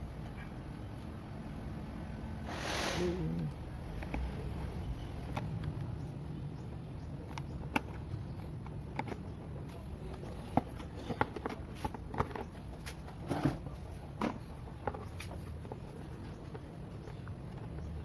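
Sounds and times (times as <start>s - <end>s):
plastic parts clicking and knocking: 7.2s - 15.8s.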